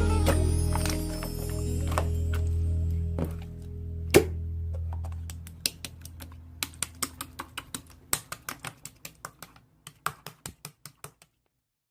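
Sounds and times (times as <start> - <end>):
music: 0.0 - 5.0.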